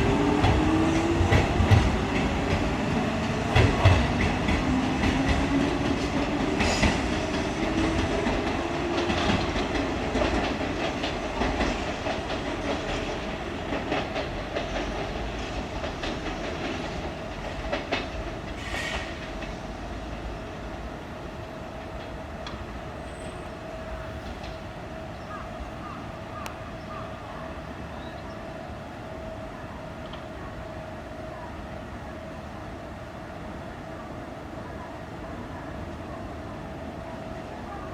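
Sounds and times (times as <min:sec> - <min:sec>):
train wheels clicking over rail joints: 0:00.0 - 0:20.3.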